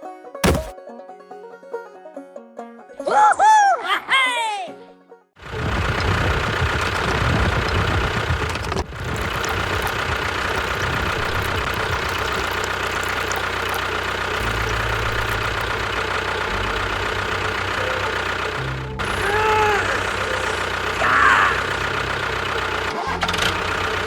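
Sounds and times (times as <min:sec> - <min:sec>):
model tractor engine running: 0:05.4 - 0:24.0.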